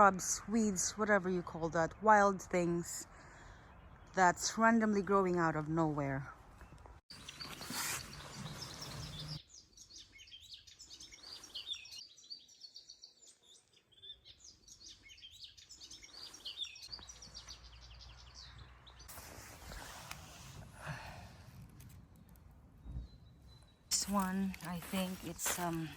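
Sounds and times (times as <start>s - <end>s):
small birds chirping: 6.4s - 20.0s, 22.1s - 25.9s.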